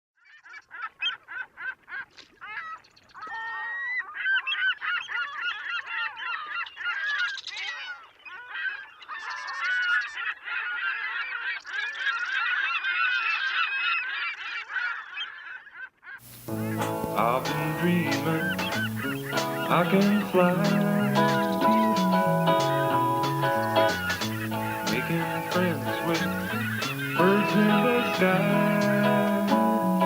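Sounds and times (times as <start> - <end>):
geese honking: 16.2 - 30.0.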